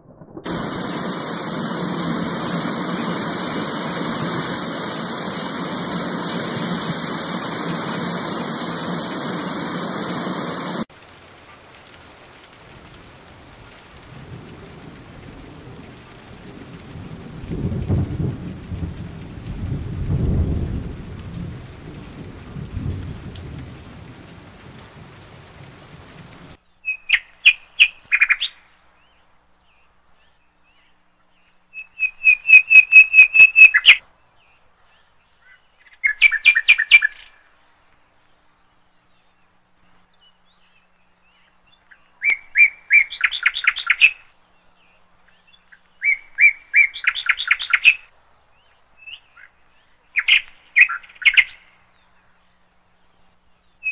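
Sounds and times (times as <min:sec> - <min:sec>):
thunder rumbling: 0:00.0 - 0:26.6
rain hissing: 0:00.4 - 0:26.6
songbird singing: 0:26.6 - 0:53.9.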